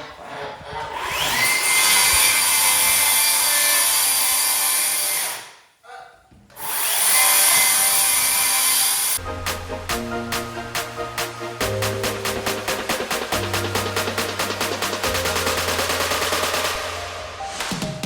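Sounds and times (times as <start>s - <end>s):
music: 9.2s - 18.0s.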